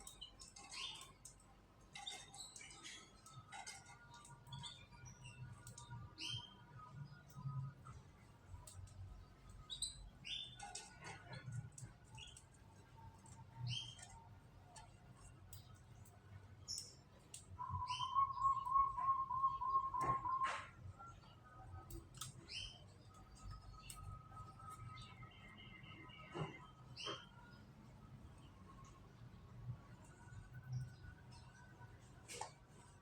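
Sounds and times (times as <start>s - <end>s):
canaries chirping: 16.6s - 20.7s
bird singing pulsing trill: 17.6s - 21.8s.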